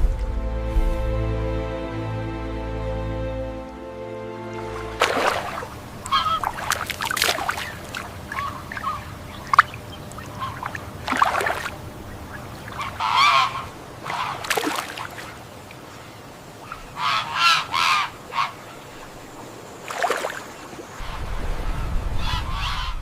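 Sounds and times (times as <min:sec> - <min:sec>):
birds harsh calls: 0:05.0 - 0:21.2.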